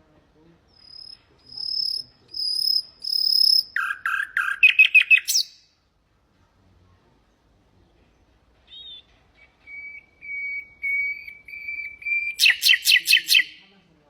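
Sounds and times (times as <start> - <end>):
nightingale singing: 0.7 - 5.8, 8.6 - 13.7.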